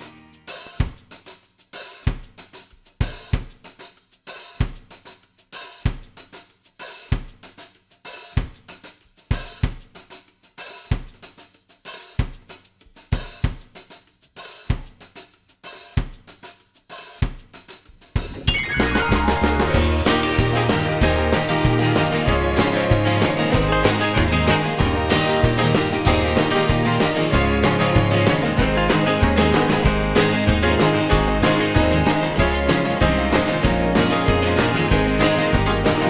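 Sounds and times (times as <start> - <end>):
drum kit playing a steady beat: 0.0 - 36.0.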